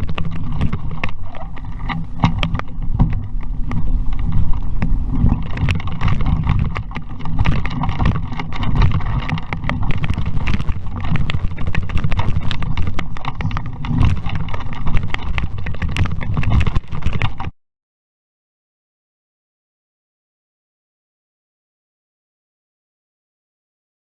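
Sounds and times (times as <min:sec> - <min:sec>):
boat knocks and rattles: 0:00.0 - 0:17.5
wind buffeting microphone: 0:00.0 - 0:17.5.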